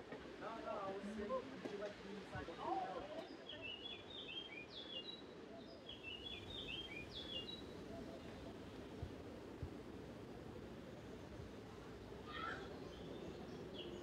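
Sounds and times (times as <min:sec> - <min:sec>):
songbird chirping: 0:03.2 - 0:08.4, 0:12.1 - 0:14.0.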